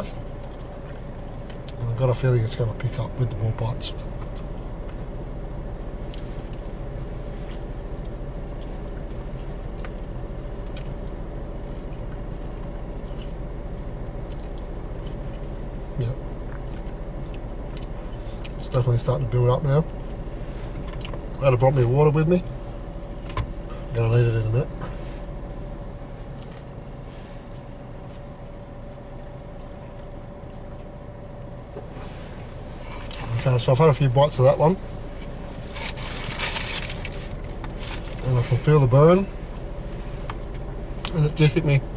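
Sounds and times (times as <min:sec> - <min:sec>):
car engine idling: 0:00.0 - 0:41.9
faint whine: 0:00.0 - 0:41.9
low background hum: 0:00.0 - 0:41.9
person chewing food: 0:09.0 - 0:15.8, 0:16.4 - 0:18.6.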